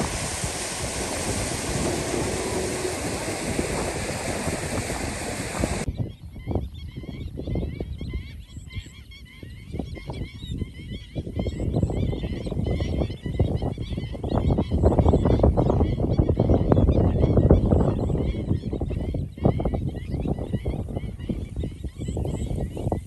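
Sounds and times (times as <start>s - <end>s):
loud rushing noise: 0.0s - 5.9s.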